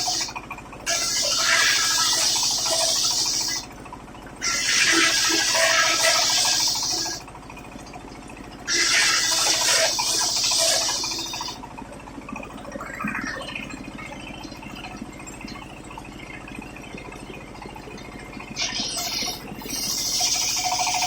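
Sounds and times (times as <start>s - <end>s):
circular saw cutting wood: 0.0s - 0.3s, 0.9s - 3.6s, 4.4s - 7.2s, 8.7s - 11.6s
saw running with steady hum: 0.0s - 12.6s, 14.9s - 21.0s.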